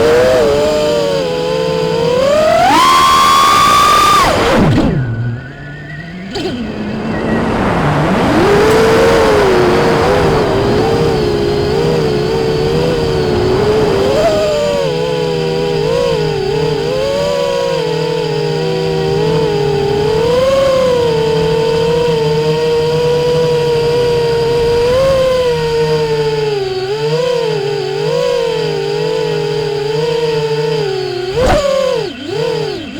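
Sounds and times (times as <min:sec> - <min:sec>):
drone motors whining: 0:00.0 - 0:32.9
rushing air noise: 0:04.4 - 0:14.4.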